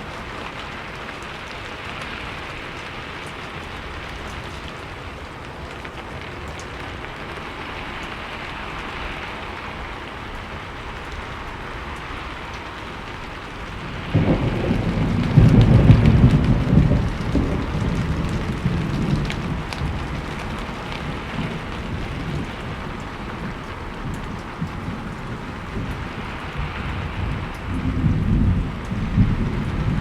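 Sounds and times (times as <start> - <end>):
steady rainfall hissing: 0.0 - 30.0
low rumble of thunder: 6.5 - 30.0.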